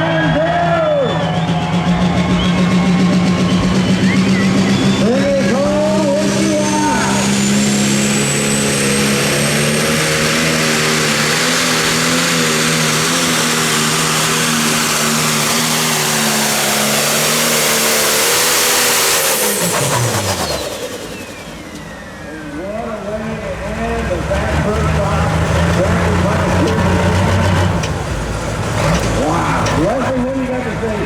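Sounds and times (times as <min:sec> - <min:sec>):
diesel tractor engine at full power: 0:00.0 - 0:31.0
turbo whistle: 0:00.8 - 0:07.6.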